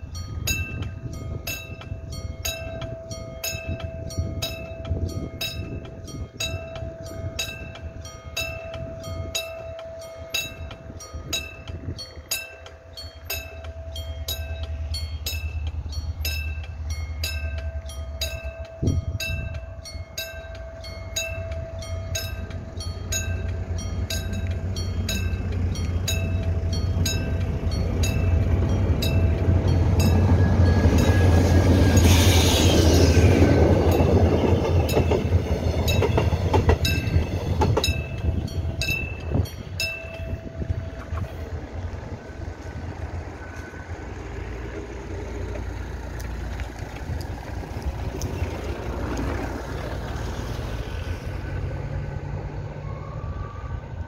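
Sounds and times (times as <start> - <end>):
level crossing bell ringing: 0.0 - 32.0, 35.9 - 41.6
diesel locomotive rumble: 0.0 - 54.0.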